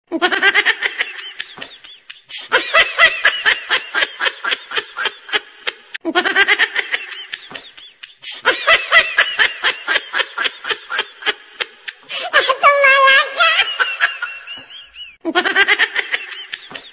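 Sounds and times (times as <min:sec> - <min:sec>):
looped laughter: 0:00.1 - 0:16.9.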